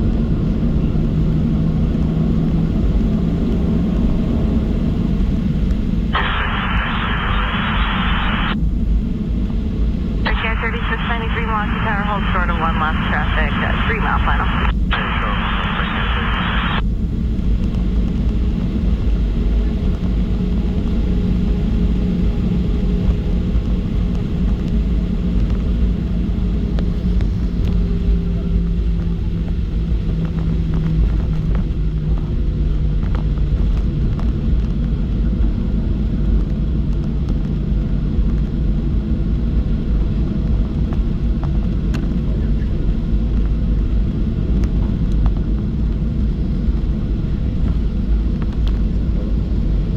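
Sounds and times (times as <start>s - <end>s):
aircraft cabin rumble: 2.8s - 20.6s
jet engines droning: 4.4s - 20.9s.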